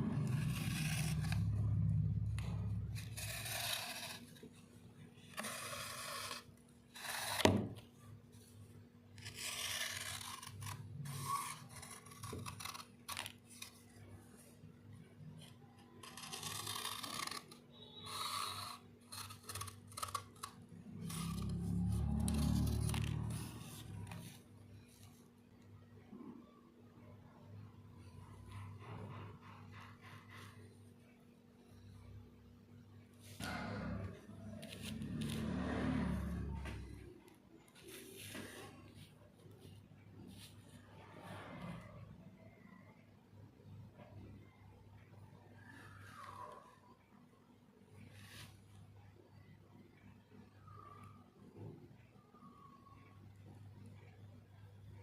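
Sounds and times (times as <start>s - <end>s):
scraping and rubbing strokes: 0.0s - 7.5s, 16.0s - 25.2s, 33.2s - 37.0s.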